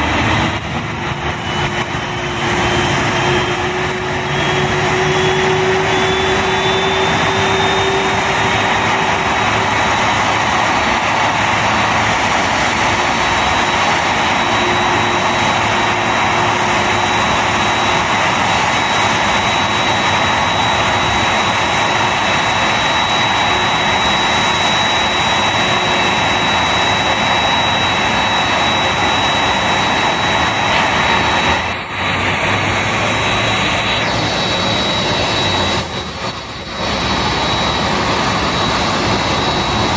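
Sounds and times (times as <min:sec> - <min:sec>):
jet engines idling with high whine: 0:00.0 - 0:39.9.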